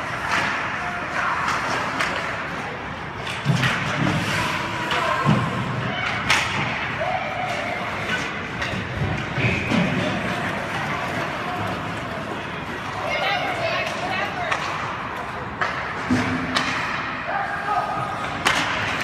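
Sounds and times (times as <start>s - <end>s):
murmur of voices: 0.0s - 19.0s
people shouting: 4.7s - 8.2s.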